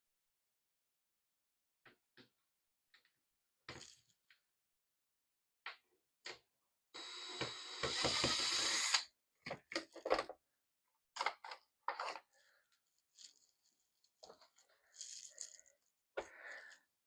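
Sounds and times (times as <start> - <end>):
small electric motor whine: 7.0 - 9.0.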